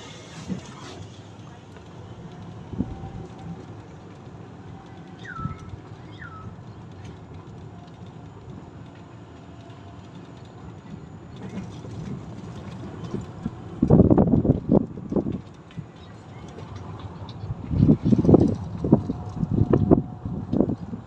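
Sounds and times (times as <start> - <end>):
golf cart motor and road noise: 0.0 - 21.0
whistled bird calls: 5.2 - 6.5.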